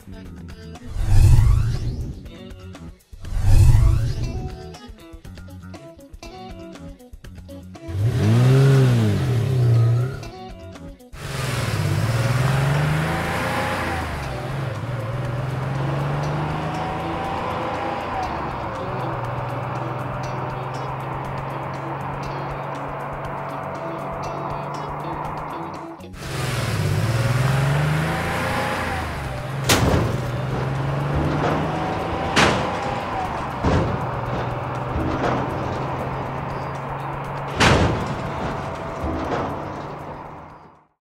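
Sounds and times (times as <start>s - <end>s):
car engine running: 7.8s - 41.0s
sharp knocks: 27.3s - 40.6s.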